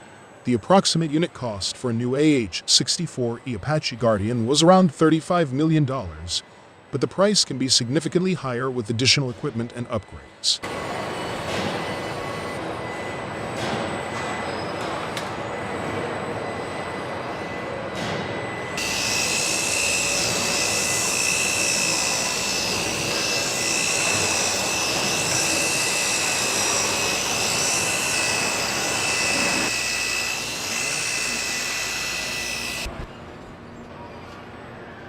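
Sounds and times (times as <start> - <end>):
helicopter turbine whine: 18.4 - 33.1.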